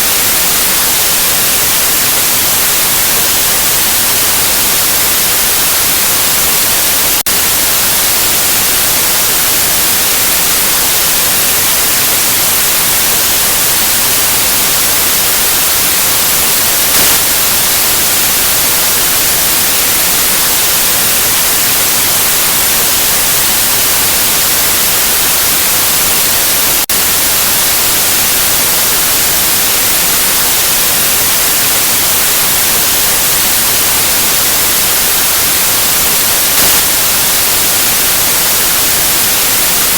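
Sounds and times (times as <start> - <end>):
white noise hiss: 0.0 - 39.9
short blip: 16.9 - 17.3.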